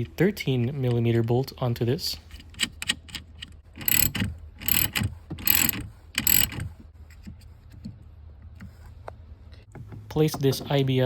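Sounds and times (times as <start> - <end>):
hand ratchet clicking: 3.8 - 6.6.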